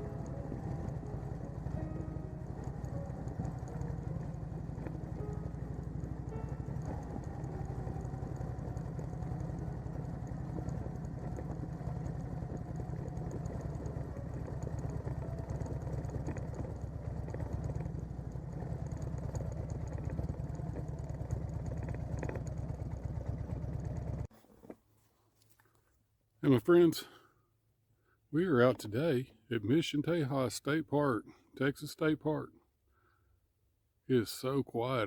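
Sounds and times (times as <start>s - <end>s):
motorcycle engine rumbling: 0.0s - 24.3s.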